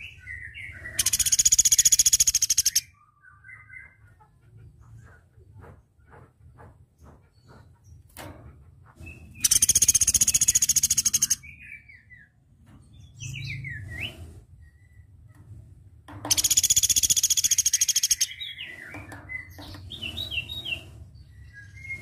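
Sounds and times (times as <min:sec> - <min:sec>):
woodpecker rattling trill: 0:01.0 - 0:02.8, 0:09.4 - 0:11.4, 0:16.3 - 0:20.6.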